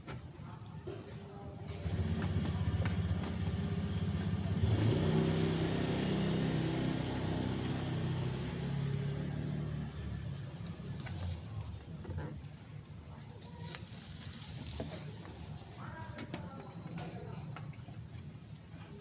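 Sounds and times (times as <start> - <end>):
diesel engine revving: 1.7 - 11.9.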